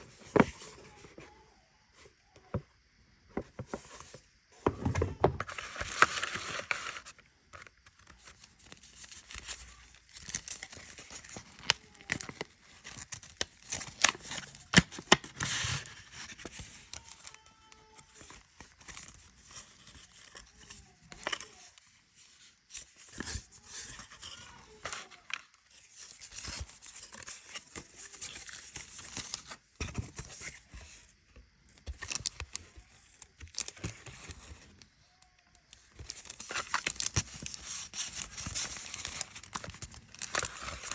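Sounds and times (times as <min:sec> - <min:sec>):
paper crinkling and tearing: 0:05.4 - 0:21.6, 0:35.8 - 0:40.9.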